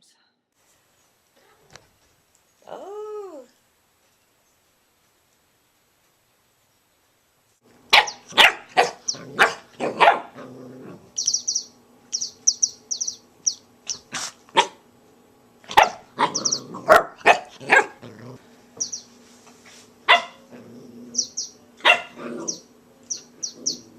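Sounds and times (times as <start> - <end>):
puppy barking in sharp yaps: 7.9 - 10.3, 13.9 - 14.8, 15.7 - 18.0, 20.1 - 20.4, 21.8 - 22.2.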